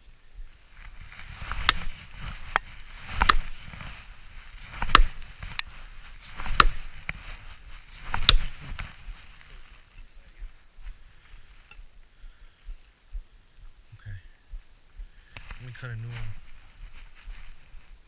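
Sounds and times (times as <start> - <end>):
heavy chopping blows into wood: 1.5 - 3.6, 4.7 - 5.3, 6.3 - 7.1, 8.1 - 8.6.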